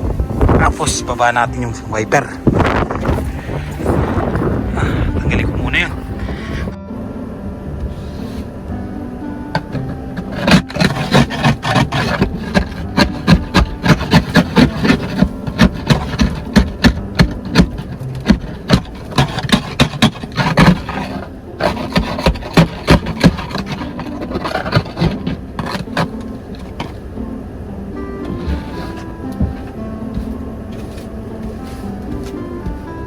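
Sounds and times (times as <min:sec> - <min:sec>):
car engine running: 0:00.0 - 0:33.0
ice scraper on windshield: 0:02.5 - 0:06.8, 0:09.6 - 0:27.1, 0:28.3 - 0:32.5.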